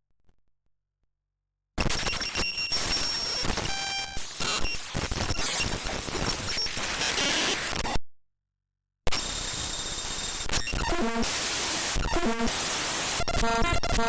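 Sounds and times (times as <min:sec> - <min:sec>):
harsh static-like noise: 0:02.8 - 0:07.8, 0:09.2 - 0:14.0.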